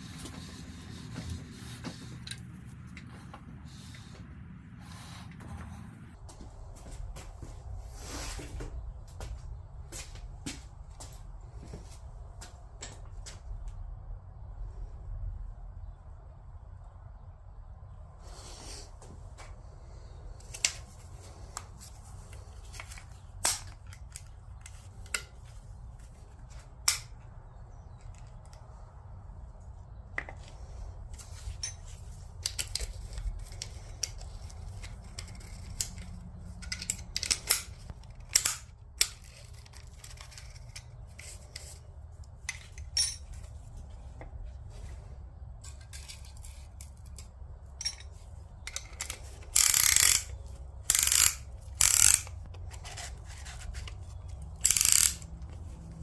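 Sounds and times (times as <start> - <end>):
metal parts clinking: 31.2 - 41.8, 42.4 - 43.5, 45.6 - 55.6.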